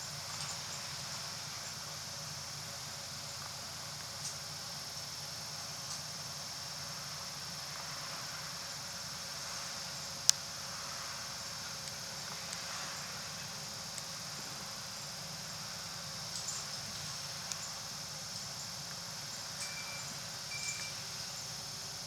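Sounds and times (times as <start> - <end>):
steady high hiss: 0.0 - 22.0
faint ticks: 11.8 - 13.0, 13.9 - 14.2, 16.3 - 19.0.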